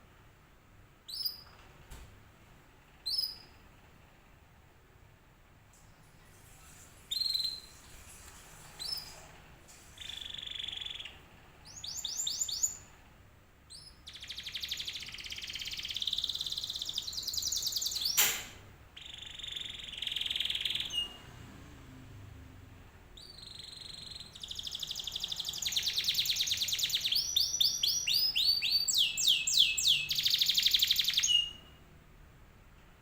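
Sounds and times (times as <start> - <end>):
canary singing: 1.1 - 1.5, 3.0 - 3.6, 7.1 - 7.9, 10.0 - 12.9, 13.7 - 18.2, 19.0 - 21.3, 23.2 - 31.8.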